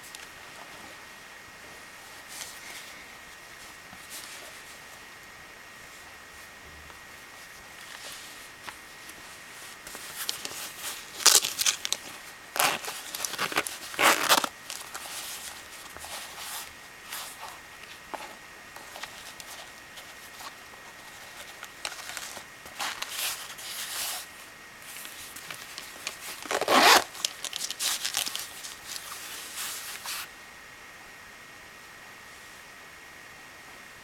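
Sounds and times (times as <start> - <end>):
faint steady hiss: 0.0 - 34.0
packaging rustling and scraping: 7.4 - 30.3.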